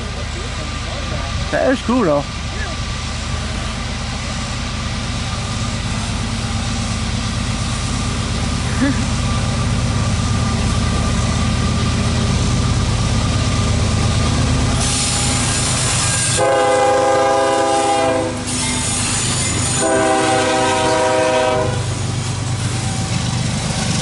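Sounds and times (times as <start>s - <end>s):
train rumbling past: 0.0s - 24.0s
brief air hiss: 14.8s - 16.4s
locomotive air horn blasts: 16.2s - 22.0s.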